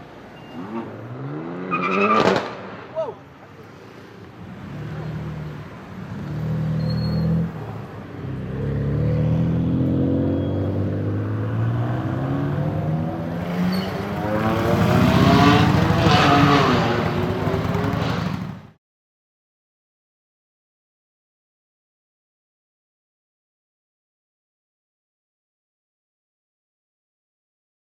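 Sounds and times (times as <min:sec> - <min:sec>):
car engine accelerating: 0:06.0 - 0:18.5.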